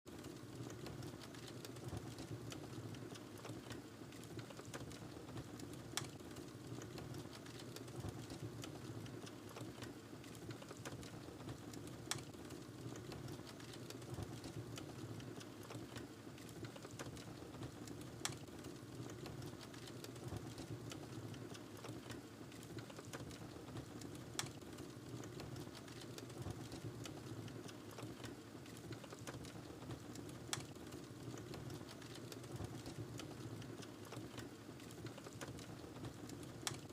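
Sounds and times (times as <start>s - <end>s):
wood fire crackling: 0.1s - 36.9s.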